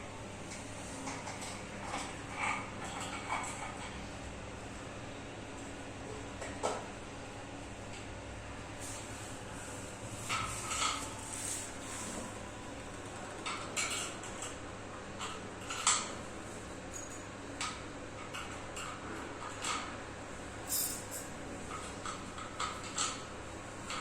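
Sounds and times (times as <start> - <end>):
metal tools clinking: 20.7 - 21.3.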